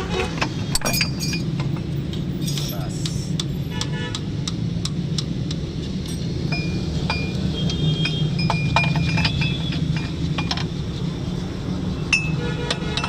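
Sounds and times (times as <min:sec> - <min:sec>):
metal tools clinking: 0:00.7 - 0:01.7, 0:08.0 - 0:10.8.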